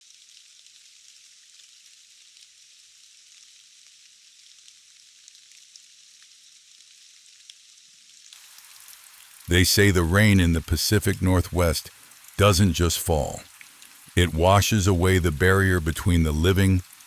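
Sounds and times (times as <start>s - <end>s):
rain hiss: 0.2s - 17.0s
light ticks of raindrops: 8.4s - 17.0s.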